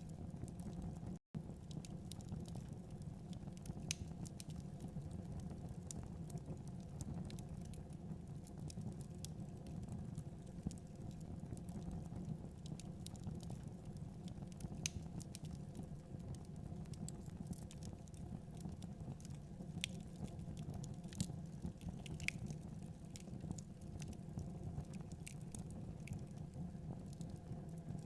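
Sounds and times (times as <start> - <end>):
crackles and pops of fire: 0.0 - 28.0
wood fire burning: 0.0 - 28.0.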